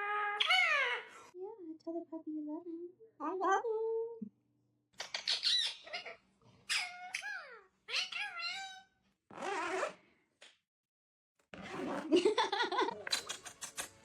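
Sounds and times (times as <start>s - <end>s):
pet animal calling: 5.0s - 8.9s.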